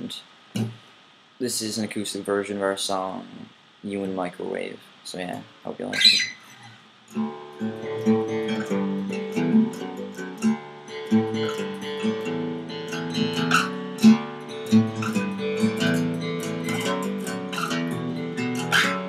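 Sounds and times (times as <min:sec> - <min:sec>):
acoustic guitar strumming: 0:00.6 - 0:00.8, 0:06.1 - 0:19.0.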